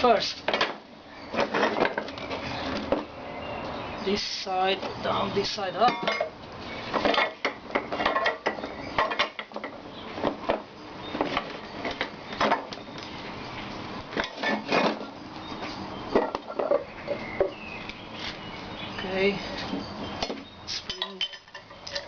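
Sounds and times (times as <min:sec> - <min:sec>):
iron parts clinking and knocking: 0:00.5 - 0:03.1, 0:05.8 - 0:13.0, 0:14.1 - 0:15.2, 0:16.1 - 0:17.5, 0:19.8 - 0:22.0.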